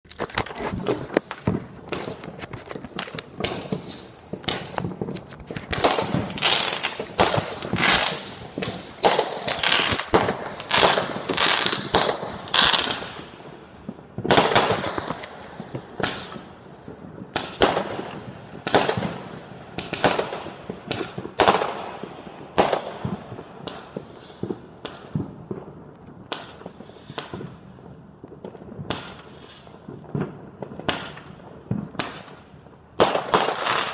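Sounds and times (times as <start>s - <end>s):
fireworks bangs and pops: 0.1s - 33.9s.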